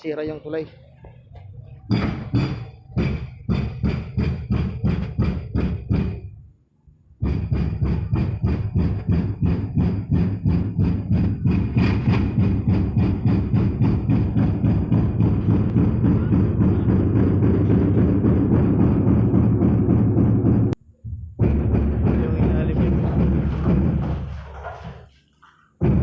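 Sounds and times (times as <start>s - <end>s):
concrete breaker pounding: 7.2s - 20.8s, 21.4s - 25.1s, 25.8s - 26.0s.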